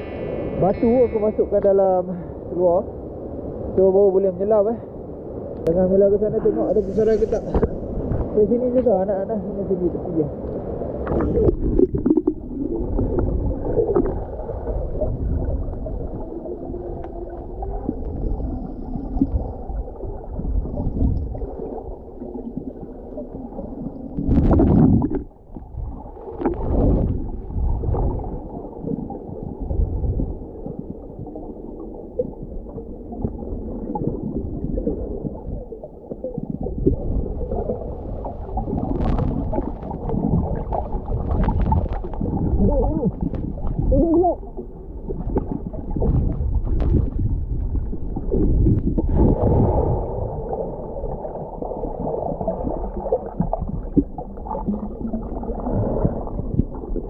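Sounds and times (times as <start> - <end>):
underwater gurgling with bubbles: 10.4 - 57.0.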